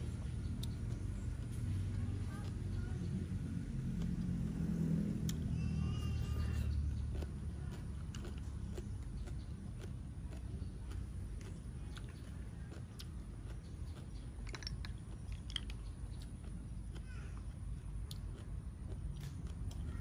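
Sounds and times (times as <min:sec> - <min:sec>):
person chewing: 0:00.0 - 0:02.7, 0:03.7 - 0:05.5, 0:06.3 - 0:20.0
snail shells clicking: 0:07.1 - 0:17.0.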